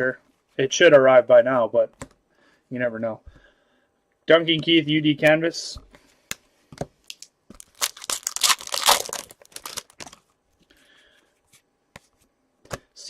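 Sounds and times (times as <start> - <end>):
foil wrapper tearing and crinkling: 7.1 - 10.2.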